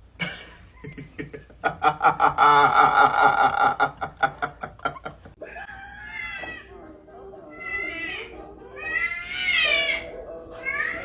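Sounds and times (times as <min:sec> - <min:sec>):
person laughing hard: 0:00.2 - 0:05.4.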